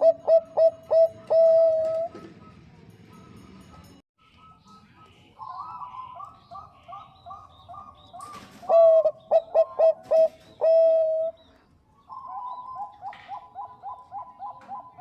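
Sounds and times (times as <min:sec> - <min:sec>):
dove cooing: 0:00.0 - 0:02.5, 0:05.4 - 0:11.5, 0:12.1 - 0:15.0.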